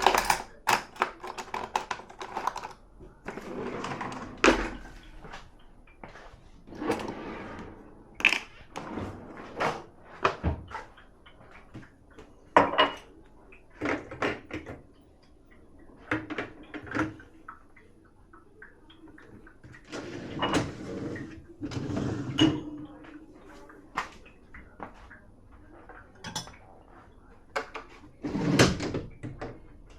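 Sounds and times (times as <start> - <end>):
sliding scrape: 0.0 - 2.8, 6.7 - 7.8
dishes clinking and knocking: 0.0 - 5.4, 6.7 - 7.6, 12.6 - 13.0.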